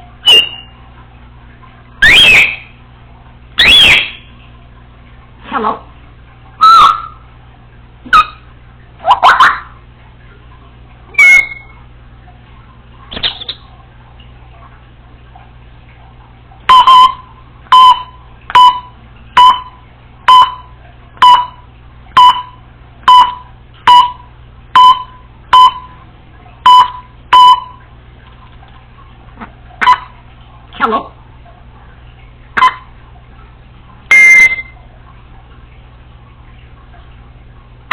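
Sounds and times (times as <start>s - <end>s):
parrot beep-like calls: 0.2s - 0.8s, 2.0s - 2.7s, 3.6s - 4.3s, 6.6s - 7.2s, 8.1s - 9.7s, 11.1s - 11.8s, 16.7s - 19.7s, 29.8s - 30.1s, 32.6s - 32.9s, 34.1s - 34.8s.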